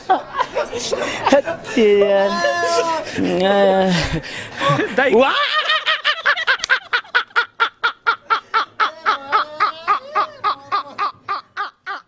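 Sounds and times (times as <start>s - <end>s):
person laughing rhythmically: 4.6s - 12.0s.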